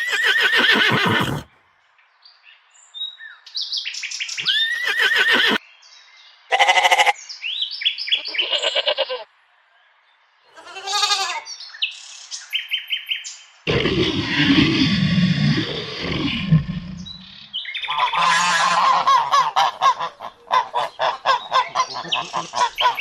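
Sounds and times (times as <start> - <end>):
animal bleat: 6.5 - 7.2, 8.2 - 9.3, 10.5 - 11.5
bird chirps and calls: 15.9 - 18.3, 20.8 - 23.0.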